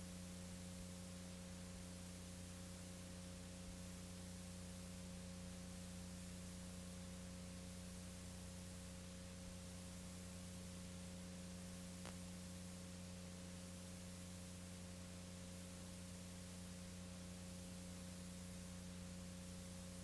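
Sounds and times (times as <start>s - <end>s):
low electrical hum: 0.0s - 20.0s
faint click: 12.0s - 12.2s.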